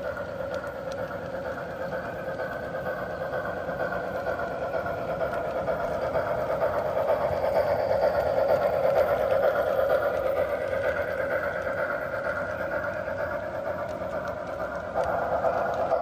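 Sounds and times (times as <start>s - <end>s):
model train humming: 0.0s - 16.0s.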